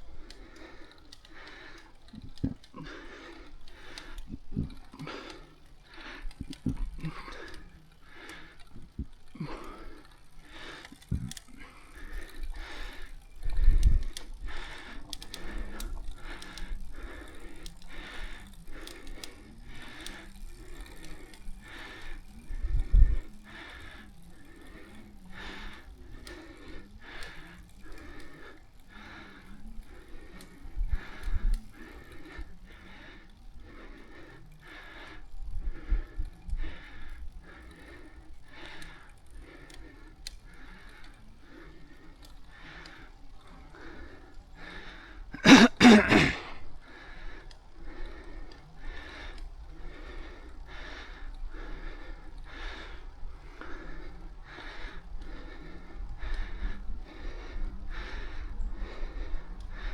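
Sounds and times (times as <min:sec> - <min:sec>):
person breathing hard: 0:00.0 - 0:59.9
loud cough: 0:45.4 - 0:46.5.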